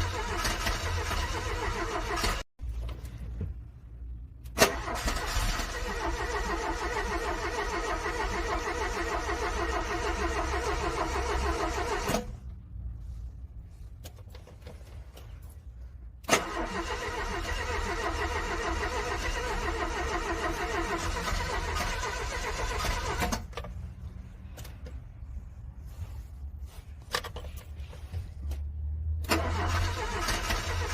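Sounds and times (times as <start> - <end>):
car engine cranking: 0.0 - 2.8, 4.4 - 12.4, 16.2 - 23.8, 29.2 - 30.9.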